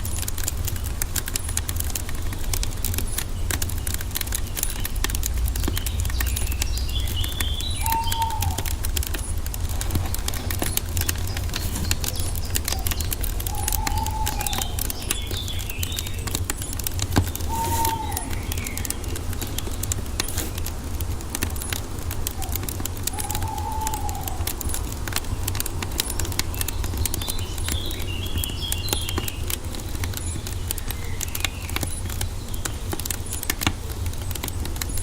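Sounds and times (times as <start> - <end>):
wood fire crackling: 0.0 - 35.0
bird calling with whistled notes: 2.2 - 20.7, 21.6 - 33.5
higher bird chirps: 2.3 - 20.7, 21.6 - 29.4.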